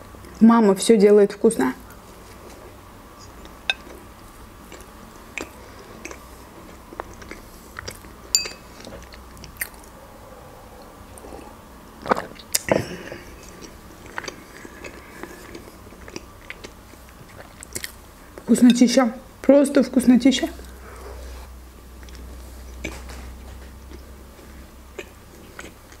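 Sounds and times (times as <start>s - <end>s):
close chewing with mouth clicks: 2.3s - 10.0s, 10.8s - 18.5s, 21.9s - 26.0s.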